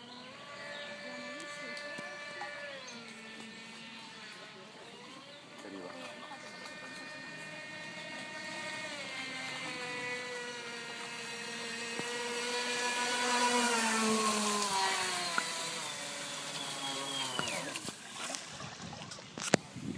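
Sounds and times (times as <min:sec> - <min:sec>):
model boat motor whining: 0:00.0 - 0:19.9.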